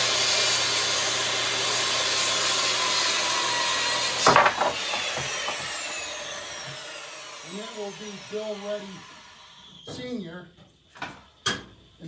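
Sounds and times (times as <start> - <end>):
electric power saw cutting wood: 0.0 - 10.0
loud clatter: 4.2 - 5.7.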